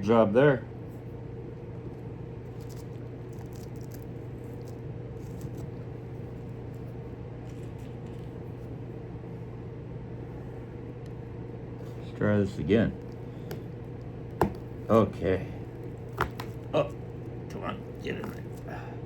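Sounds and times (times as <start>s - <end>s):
machine low hum: 0.0s - 19.0s.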